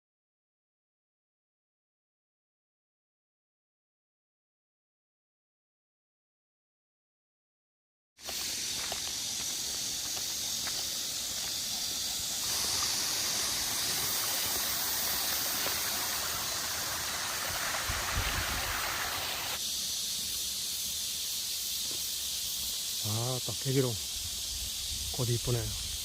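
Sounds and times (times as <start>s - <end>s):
high hiss of outdoor ambience: 8.2s - 26.0s.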